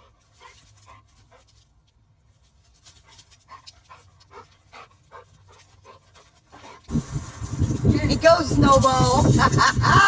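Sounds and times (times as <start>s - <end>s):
dog panting: 0.0s - 1.6s, 3.0s - 6.9s.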